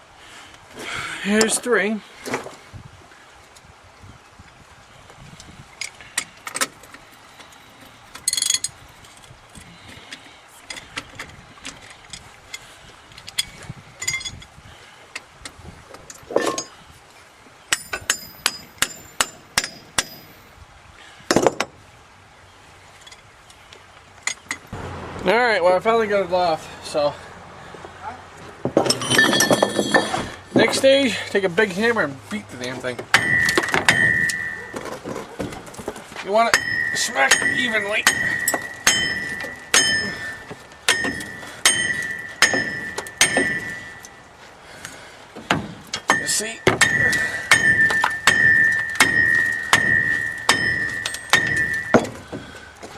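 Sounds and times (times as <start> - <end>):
hammer striking metal: 33.1 - 34.8, 36.5 - 44.1, 45.5 - 52.2.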